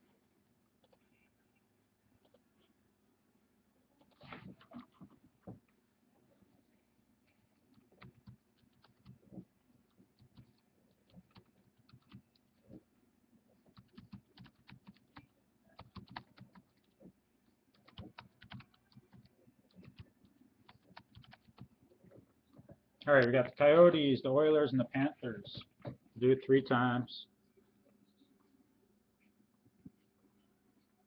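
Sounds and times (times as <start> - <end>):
computer keyboard tapping: 7.7 - 9.4, 10.2 - 12.4, 13.7 - 17.0, 17.7 - 21.7.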